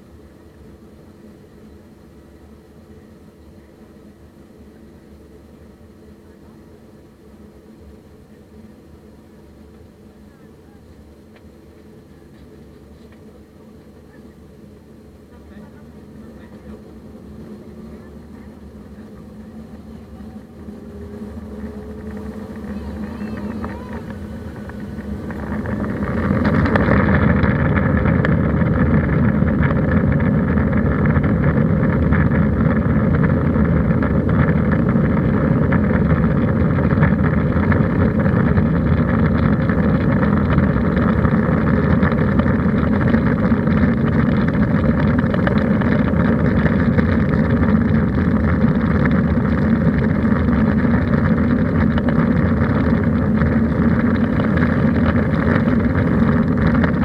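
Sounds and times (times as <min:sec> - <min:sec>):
jet engines spooling up: 0:00.0 - 0:57.0.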